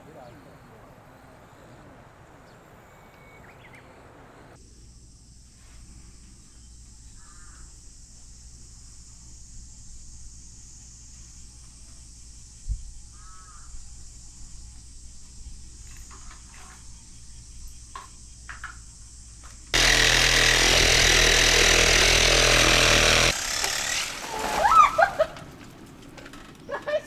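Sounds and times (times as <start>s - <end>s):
chainsaw running: 19.7s - 25.3s.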